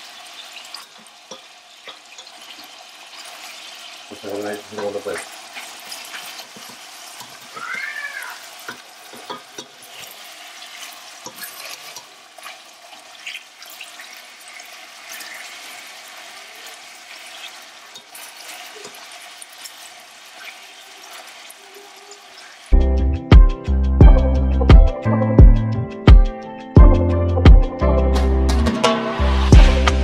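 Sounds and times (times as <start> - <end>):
fish and onion sizzling: 0.0 - 22.8.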